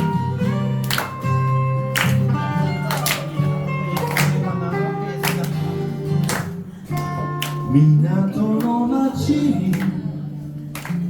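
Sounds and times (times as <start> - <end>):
live band playing: 0.0 - 7.7
guitar melody: 0.0 - 11.0.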